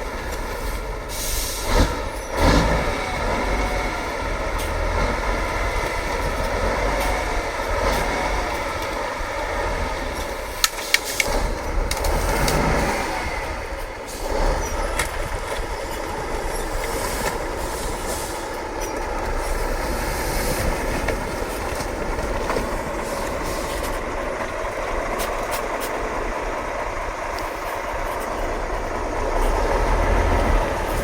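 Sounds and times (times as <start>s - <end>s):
diesel truck engine revving: 0.0s - 31.0s.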